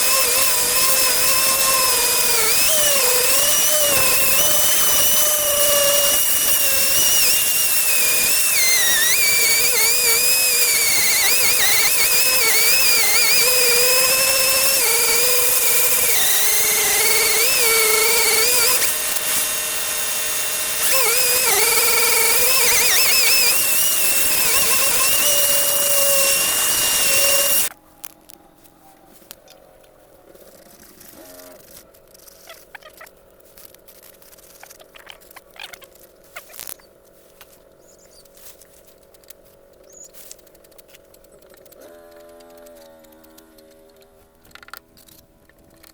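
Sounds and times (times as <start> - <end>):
power tool whining: 0.0 - 27.7.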